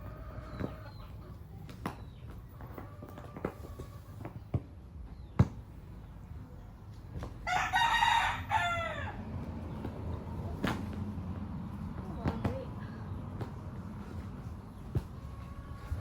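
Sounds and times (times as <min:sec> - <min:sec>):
rooster crowing: 0:07.4 - 0:09.2.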